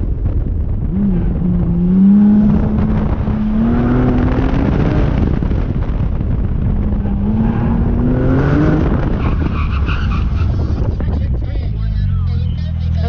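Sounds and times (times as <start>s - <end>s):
car engine accelerating: 0.0s - 13.0s
road and wind noise: 0.0s - 13.0s
tyres squealing: 9.2s - 11.1s.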